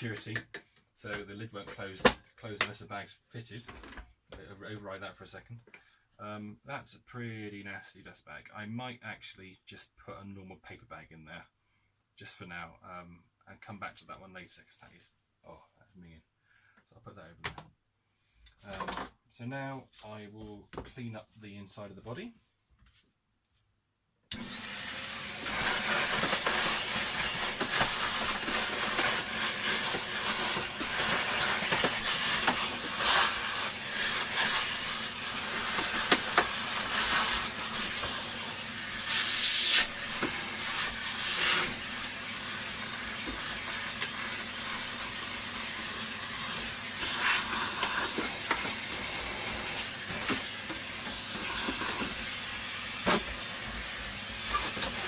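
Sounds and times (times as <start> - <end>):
vacuum cleaner rushing hiss: 24.3 - 55.0.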